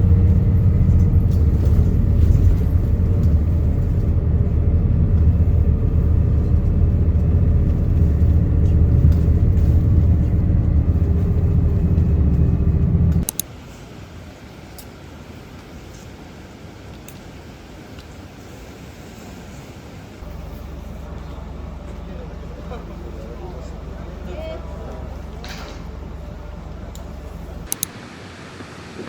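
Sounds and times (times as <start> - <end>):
motor vehicle rumbling: 0.0 - 13.4, 20.0 - 27.8.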